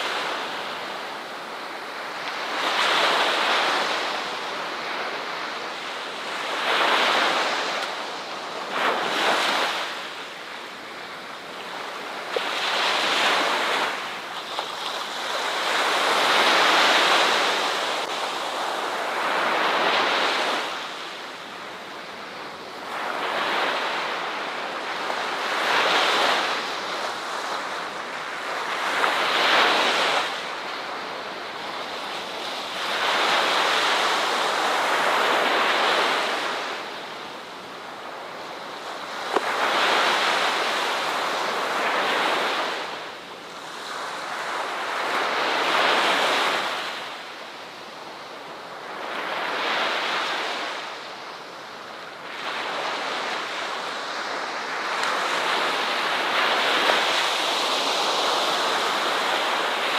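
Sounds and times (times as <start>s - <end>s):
ocean waves breaking on beach: 0.0s - 59.9s.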